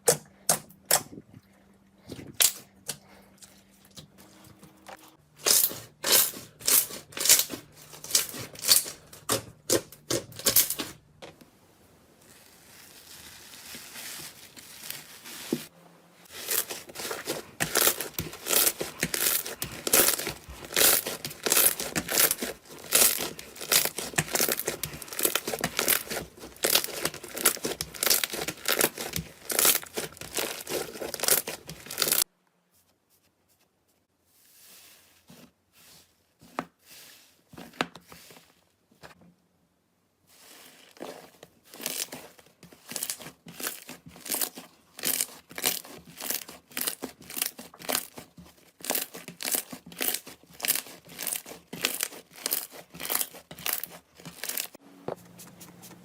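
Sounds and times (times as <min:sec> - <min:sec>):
slime crackling and popping: 0:16.4 - 0:32.2, 0:48.8 - 0:54.8.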